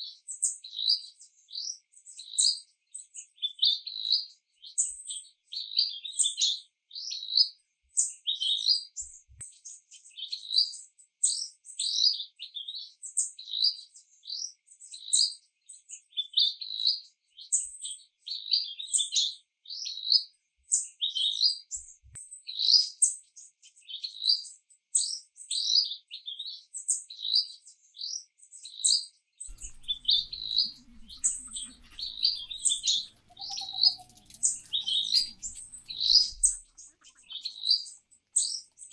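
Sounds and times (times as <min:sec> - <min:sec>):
small bird chirping: 0:29.5 - 0:38.9.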